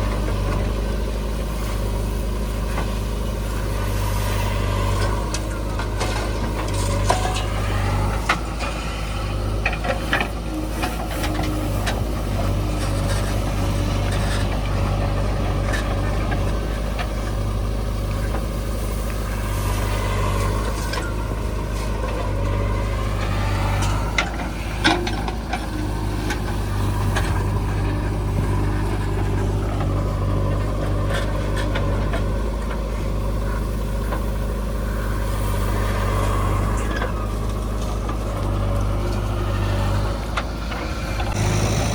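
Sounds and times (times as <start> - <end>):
diesel engine under load: 0.0 - 41.9.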